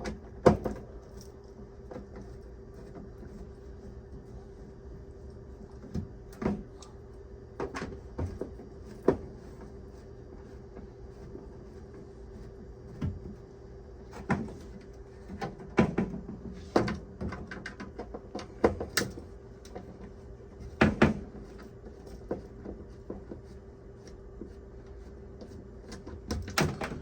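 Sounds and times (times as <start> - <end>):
steady low hum: 0.0 - 27.0
knocks and clacks on roof vent: 14.1 - 23.6.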